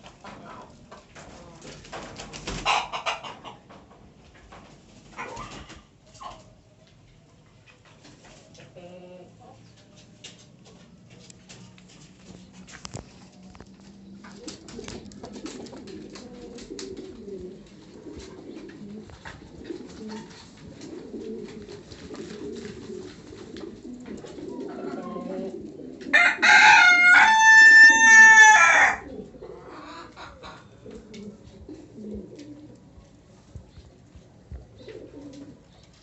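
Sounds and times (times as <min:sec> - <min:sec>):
pigeons cooing: 0:11.5 - 0:36.0
rooster crowing: 0:26.1 - 0:29.1.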